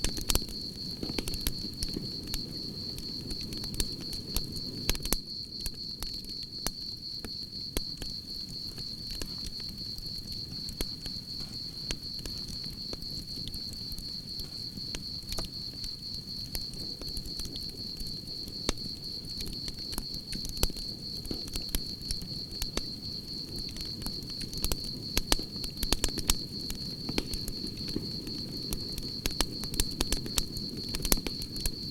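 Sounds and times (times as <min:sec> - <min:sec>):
campfire crackling and popping: 0:00.0 - 0:31.9
crickets trilling: 0:00.0 - 0:31.9.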